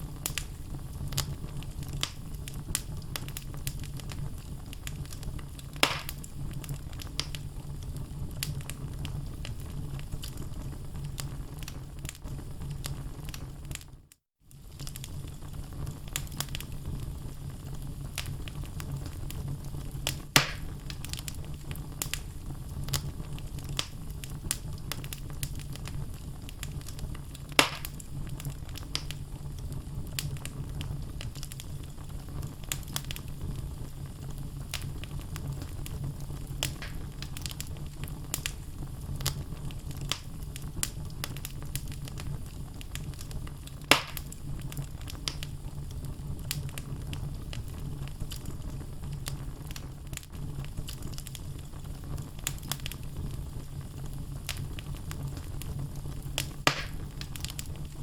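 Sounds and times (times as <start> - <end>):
low rumble of flames: 0.0 - 58.0
small fire crackles: 0.0 - 58.0
sharp pops from logs: 5.8 - 6.2, 20.4 - 20.7, 27.6 - 28.0, 36.7 - 37.0, 43.9 - 44.3, 56.7 - 57.0.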